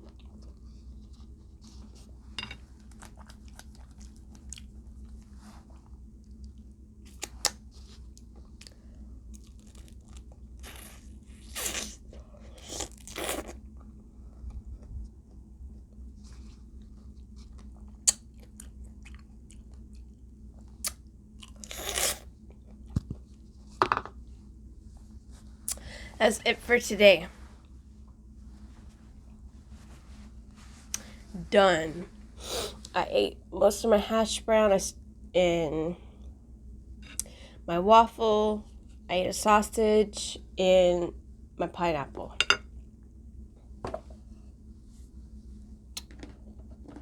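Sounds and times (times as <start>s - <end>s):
food crunching: 2.7s - 5.2s, 6.3s - 13.9s, 16.8s - 23.4s
chewing and mouth sounds: 2.7s - 5.3s, 6.2s - 14.0s, 16.4s - 23.4s.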